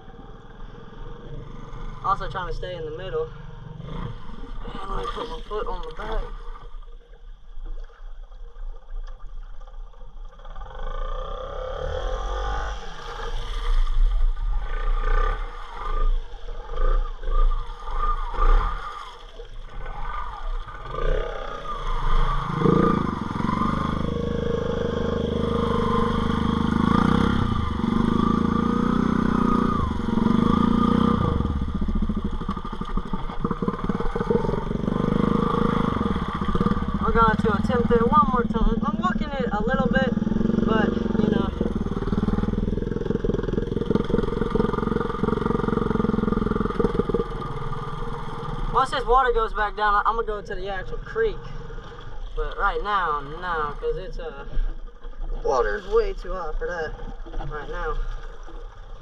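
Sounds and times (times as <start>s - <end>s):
motorbike engine revving: 10.4s - 13.4s, 14.6s - 19.1s, 19.9s - 49.8s.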